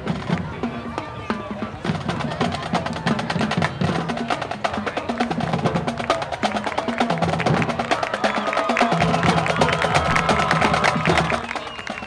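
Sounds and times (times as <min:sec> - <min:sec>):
marching band playing: 0:00.0 - 0:12.0.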